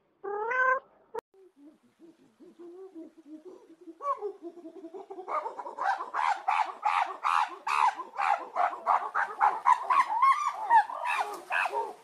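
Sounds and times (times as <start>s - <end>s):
animal calls: 5.2s - 12.0s.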